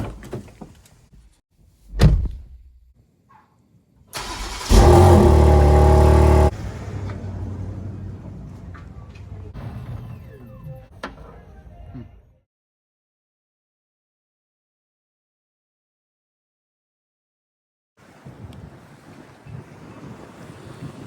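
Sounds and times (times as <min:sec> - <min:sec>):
car door thumping shut: 0:02.0 - 0:02.6
car engine starting and idling: 0:04.2 - 0:09.6.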